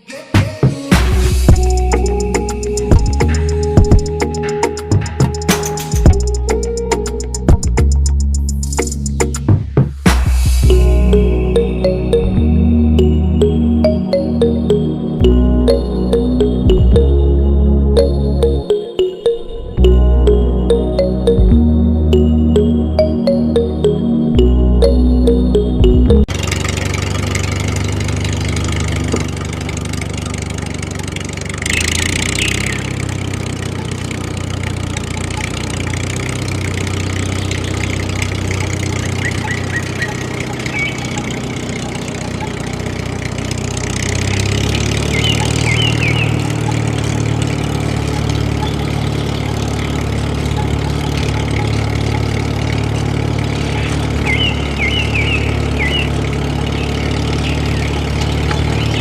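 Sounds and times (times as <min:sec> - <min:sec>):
small motor running: 0:26.3 - 0:59.0.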